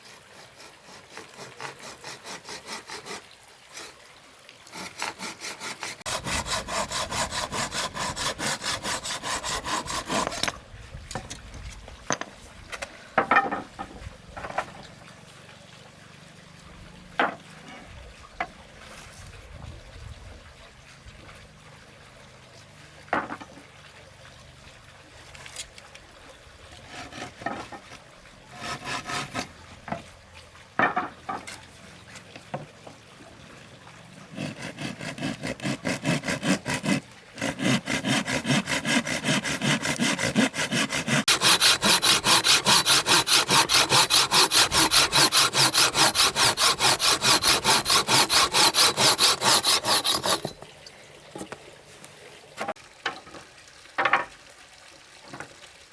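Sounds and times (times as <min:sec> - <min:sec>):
hand saw cutting wood: 0:00.0 - 0:04.0, 0:04.7 - 0:11.4, 0:26.8 - 0:30.0, 0:34.2 - 0:50.6.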